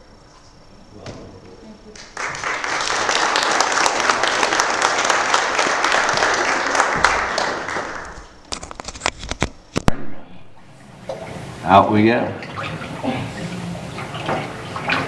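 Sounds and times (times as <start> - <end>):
congregation applauding: 1.9 - 8.4.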